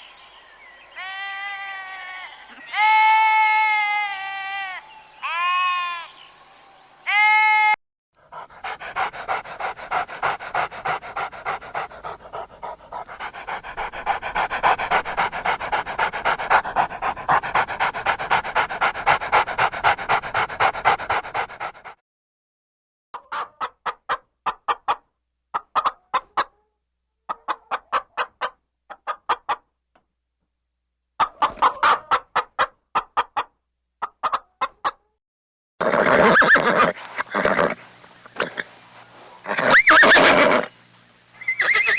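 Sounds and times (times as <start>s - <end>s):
animal sound: 0.8s - 21.9s, 35.8s - 40.8s, 41.4s - 41.9s
dog panting: 8.2s - 22.0s.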